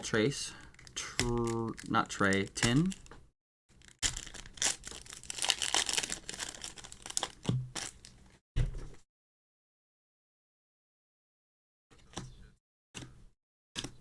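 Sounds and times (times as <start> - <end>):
foil wrapper tearing and crinkling: 0.7 - 3.1, 3.7 - 8.2.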